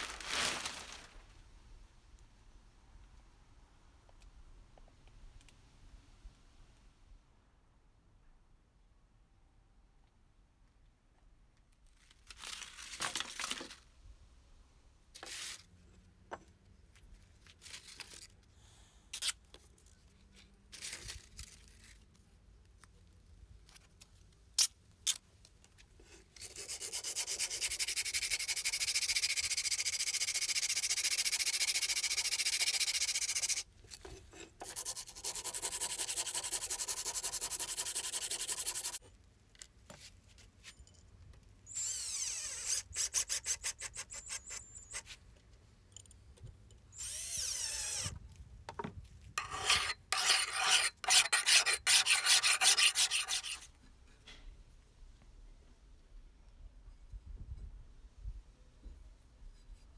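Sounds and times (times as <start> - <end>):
sanding against a part: 26.4 - 33.6, 34.5 - 39.0, 49.4 - 53.7
scrapes and knocks: 49.4 - 53.7.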